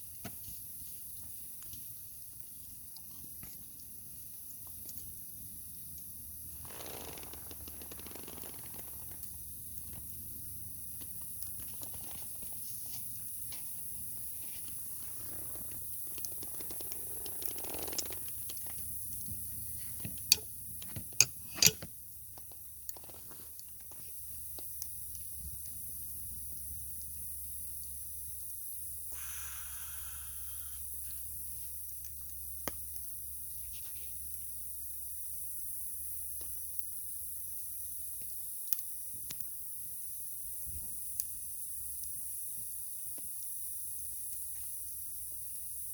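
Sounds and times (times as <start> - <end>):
fire low rumble and hiss: 0.0 - 45.9
wood fire crackling and popping: 7.2 - 19.6.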